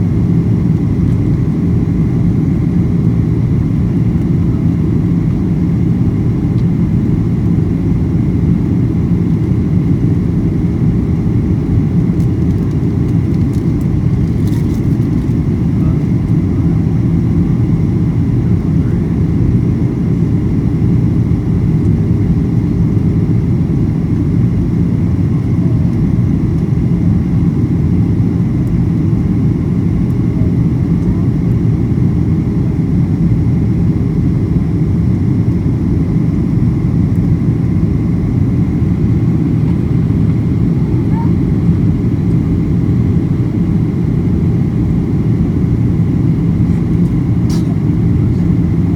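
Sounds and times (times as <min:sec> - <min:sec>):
faint steady whine: 0:00.0 - 0:48.9
jet engines rumbling in cabin: 0:00.0 - 0:48.9.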